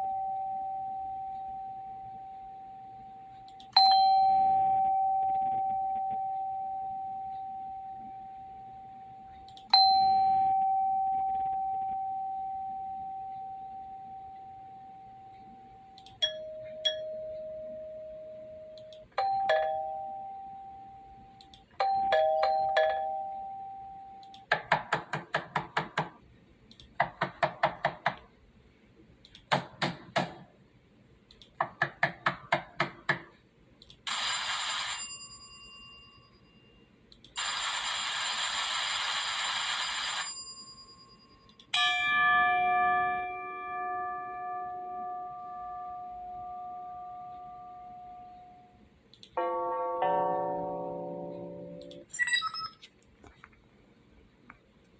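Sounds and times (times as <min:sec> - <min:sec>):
ding-dong doorbell chimes: 0:00.0 - 0:24.3, 0:34.1 - 0:36.8, 0:39.3 - 0:48.8, 0:49.4 - 0:52.0
electric bell ringing: 0:00.0 - 0:24.4, 0:34.1 - 0:36.7, 0:37.4 - 0:52.7
doorbell chime strikes: 0:03.8 - 0:08.2, 0:49.4 - 0:51.8.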